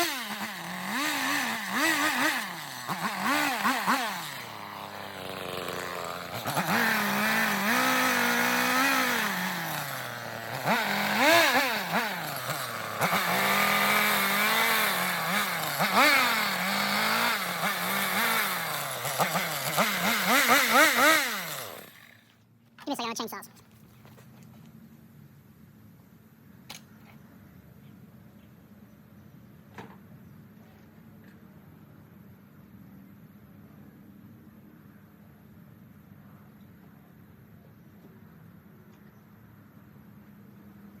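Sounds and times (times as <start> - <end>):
chainsaw cutting wood: 0.0 - 22.3.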